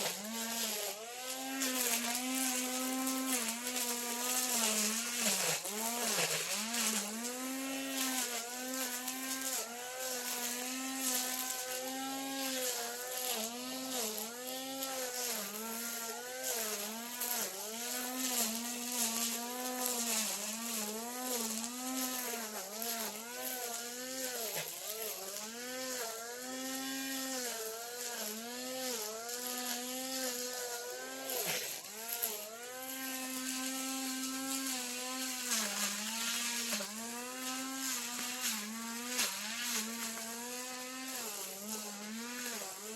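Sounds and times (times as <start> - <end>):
brush cutter engine cutting grass: 0.0 - 42.9.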